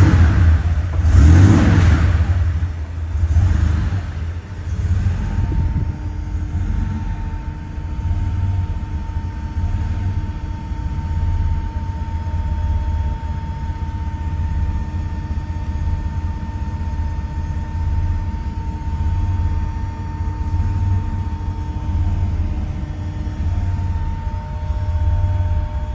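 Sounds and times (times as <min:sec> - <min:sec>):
car engine idling: 0:00.0 - 0:25.9.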